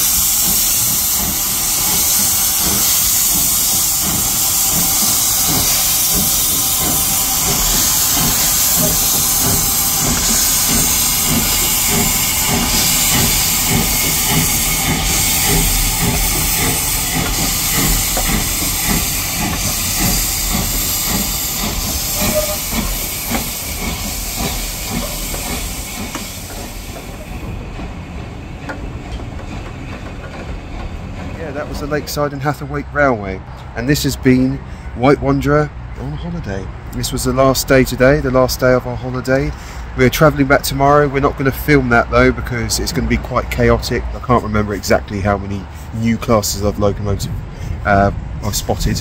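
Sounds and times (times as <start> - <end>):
locomotive rhythmic chuffing beat: 0.0 - 34.2
steam locomotive hissing steam: 0.0 - 35.5, 37.0 - 49.0.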